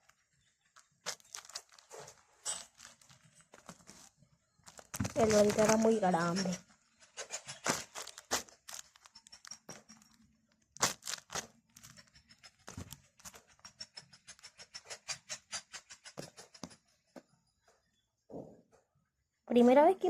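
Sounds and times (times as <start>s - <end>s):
paper squishy crackling: 0.0s - 6.5s, 7.6s - 9.6s, 10.7s - 12.0s.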